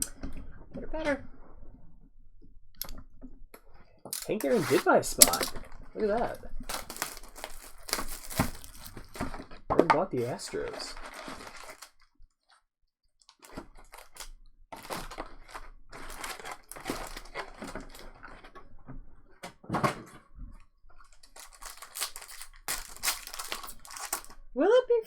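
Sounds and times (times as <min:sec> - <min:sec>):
clicking and rustling handling: 0:04.1 - 0:05.9, 0:06.6 - 0:09.6, 0:13.2 - 0:18.8, 0:20.9 - 0:24.4.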